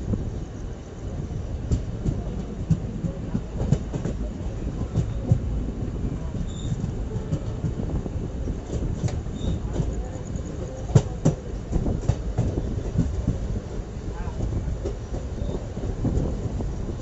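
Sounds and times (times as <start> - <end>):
train wheels rumbling on track: 0.0 - 17.0
wheels clacking over rail joint: 1.6 - 17.0.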